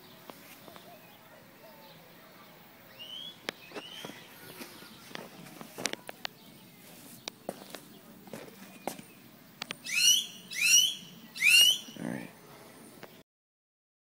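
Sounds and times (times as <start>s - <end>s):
bird rising call: 9.8s - 12.3s.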